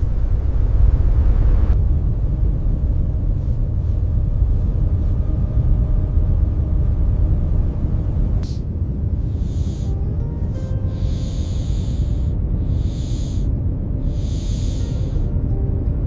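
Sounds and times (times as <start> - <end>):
storm wind rumbling: 0.0 - 9.7.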